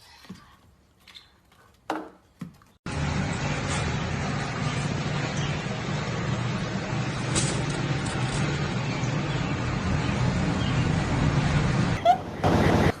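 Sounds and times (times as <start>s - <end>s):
vehicle rumble with road noise: 2.9s - 13.0s.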